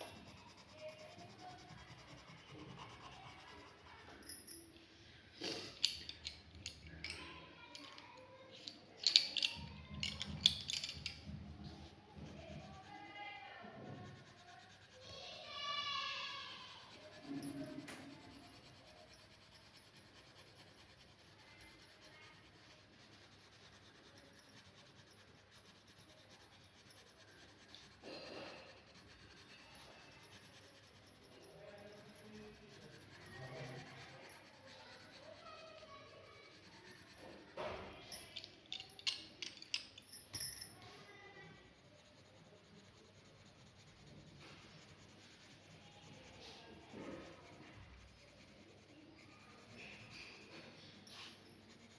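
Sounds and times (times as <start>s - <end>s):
light scratching on paper: 0.0s - 4.2s, 11.2s - 38.0s, 41.0s - 51.9s
drawing tools clicking on paper: 0.0s - 4.3s, 14.0s - 40.1s, 41.3s - 51.9s.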